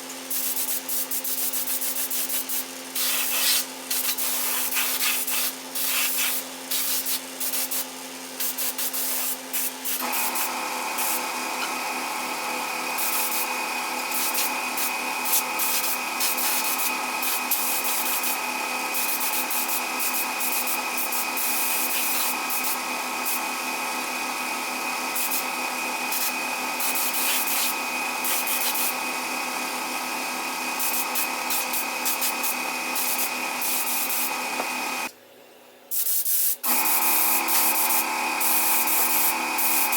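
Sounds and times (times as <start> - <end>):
power sander motor hum: 9.4 - 35.1.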